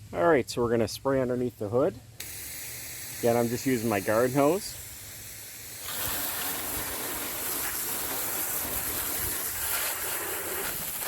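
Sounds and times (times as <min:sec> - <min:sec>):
hose spraying water mist: 0:02.2 - 0:11.0.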